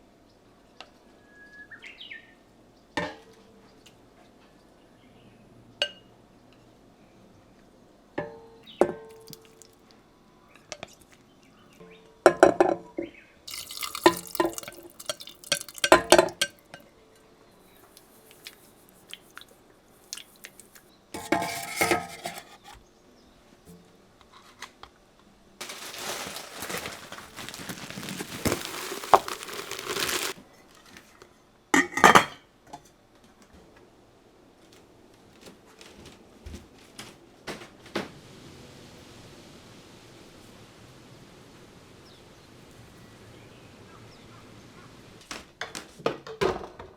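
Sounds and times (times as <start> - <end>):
running water: 13.5 - 16.5, 25.6 - 30.4
dishes and cutlery clinking: 13.5 - 16.6, 21.2 - 22.7.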